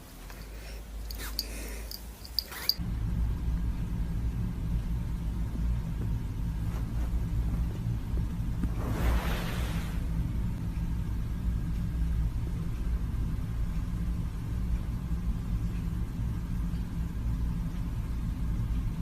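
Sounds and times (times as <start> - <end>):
low droning rumble: 2.8 - 17.4.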